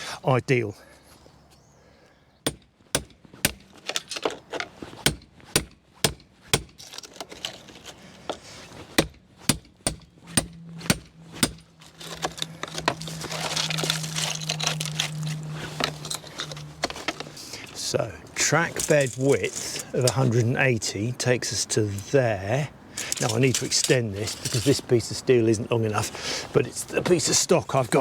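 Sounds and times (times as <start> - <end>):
hammer strikes: 2.5 - 3.7, 5.0 - 6.8, 9.0 - 11.7.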